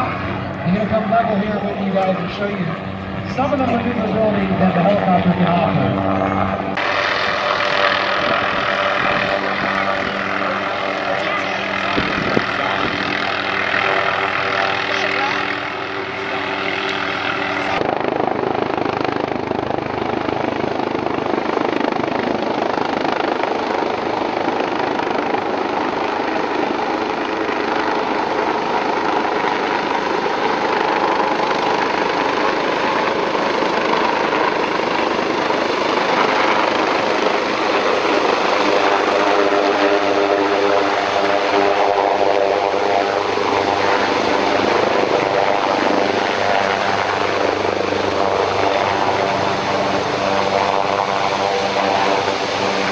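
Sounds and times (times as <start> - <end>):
pitched hum: 0.0 - 6.8
helicopter rotor and turbine: 0.0 - 52.9.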